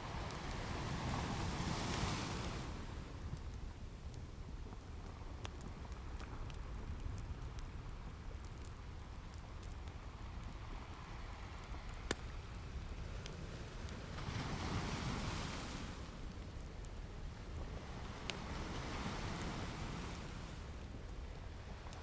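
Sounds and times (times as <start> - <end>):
ocean waves washing in: 0.1 - 3.0
wood fire crackling and popping: 0.1 - 14.7, 16.1 - 22.0.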